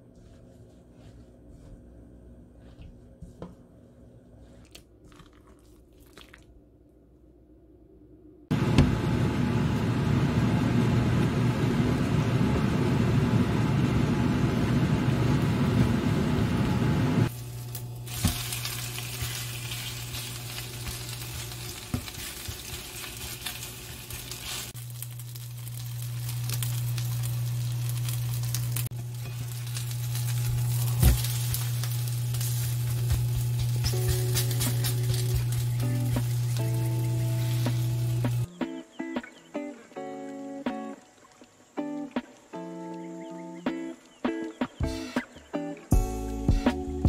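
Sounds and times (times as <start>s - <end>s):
batter sizzling in hot oil: 17.3s - 38.5s
low steady hum: 23.0s - 38.5s.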